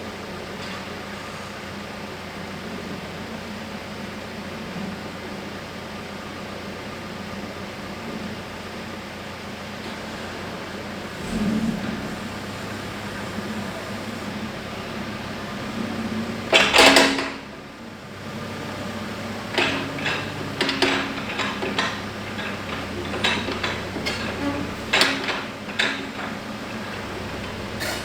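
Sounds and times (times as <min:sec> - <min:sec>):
backhoe engine hum: 0:08.3 - 0:28.0
metallic clanks and knocks: 0:11.1 - 0:17.5, 0:19.0 - 0:28.0.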